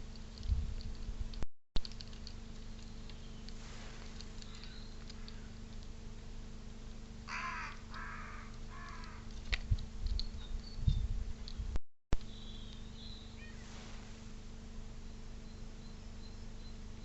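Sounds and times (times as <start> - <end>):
faint small-bird chirps: 4.4 - 5.6, 10.2 - 14.0, 15.0 - 17.0
crow cawing: 7.3 - 9.3.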